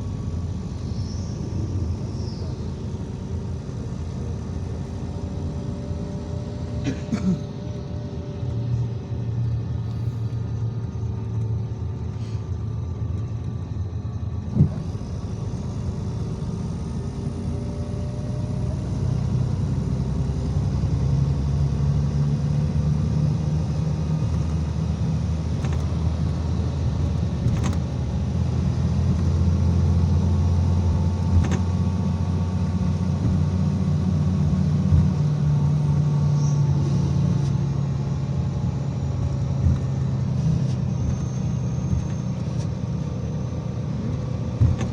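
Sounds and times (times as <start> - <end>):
bus engine rumble: 0.0 - 44.9
short knocks and rattles: 44.6 - 44.9.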